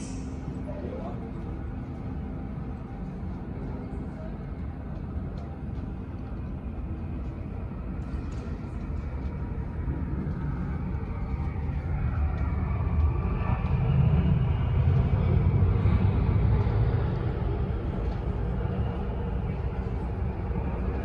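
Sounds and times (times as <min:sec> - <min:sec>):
jet engines rumbling: 0:00.0 - 0:21.0
rising engine whine: 0:00.0 - 0:21.0.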